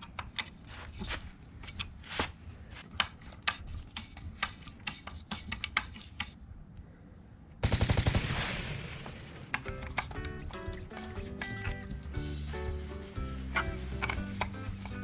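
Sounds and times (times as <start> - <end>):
sharp clicks and taps: 9.5 - 12.2.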